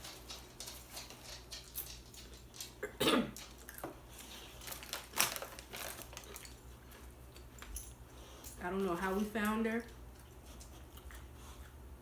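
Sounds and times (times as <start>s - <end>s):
chewing crunchy chips: 0.0s - 7.6s.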